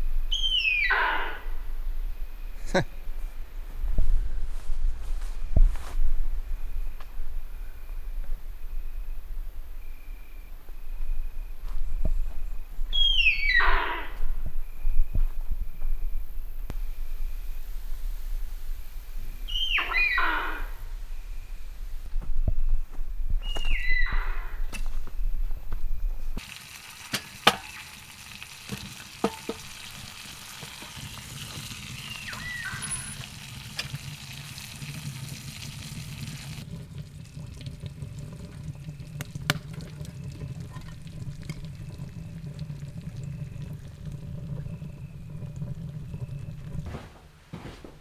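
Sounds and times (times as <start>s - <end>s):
fish sizzling in a pan: 26.4s - 37.6s
sharp knocks: 28.7s - 30.0s.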